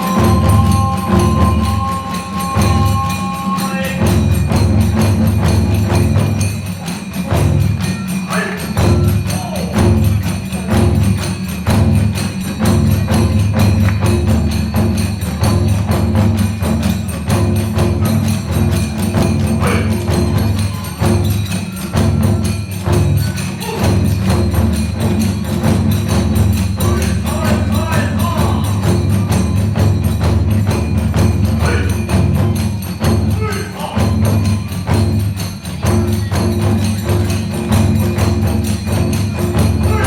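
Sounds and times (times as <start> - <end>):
bamboo flute: 0.0 - 5.2, 17.8 - 25.1
hand cymbals clashing: 0.0 - 40.0
taiko drums beating: 0.0 - 40.0.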